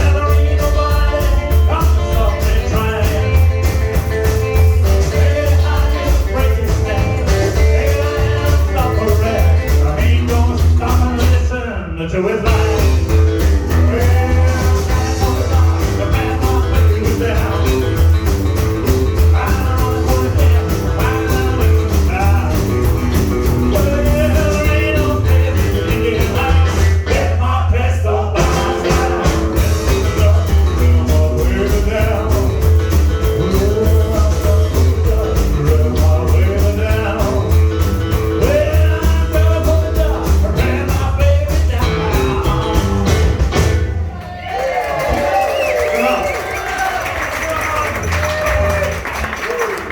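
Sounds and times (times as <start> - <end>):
rockabilly band playing: 0.0 - 49.9.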